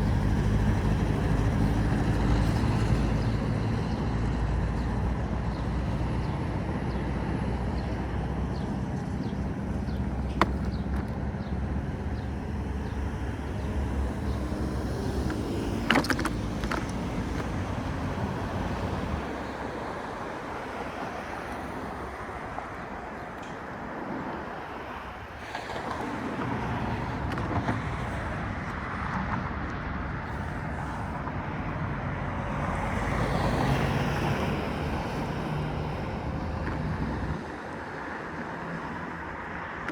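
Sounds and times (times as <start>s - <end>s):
road and traffic noise: 0.0s - 39.9s.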